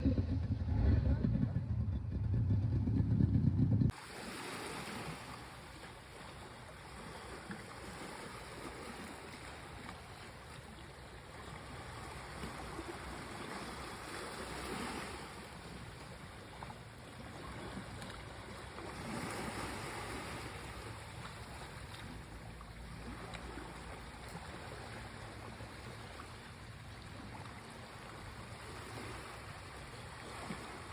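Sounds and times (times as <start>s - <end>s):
loud low rumble: 0.0s - 3.9s
sea waves washing onto shore: 3.9s - 30.9s.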